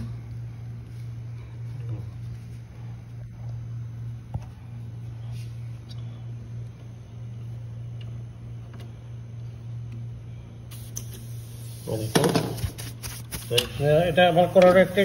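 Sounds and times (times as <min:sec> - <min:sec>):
steady low hum: 0:00.0 - 0:15.0
thin high hiss: 0:10.7 - 0:15.0.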